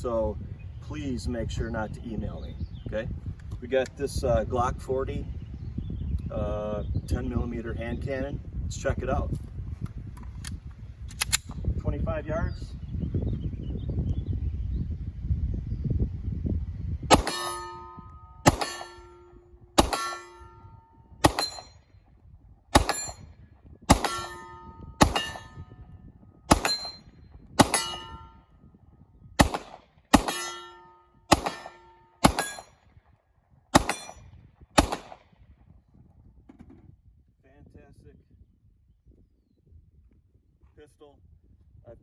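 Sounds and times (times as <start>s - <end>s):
pistol shots: 17.1s - 21.8s, 22.8s - 23.2s, 23.9s - 25.8s, 26.5s - 27.0s, 27.6s - 28.4s, 29.4s - 32.7s, 33.8s - 34.2s, 34.8s - 35.2s
bullet ringing on steel target: 17.1s - 21.9s, 22.8s - 25.9s, 26.5s - 28.5s, 29.4s - 32.8s, 33.8s - 35.1s.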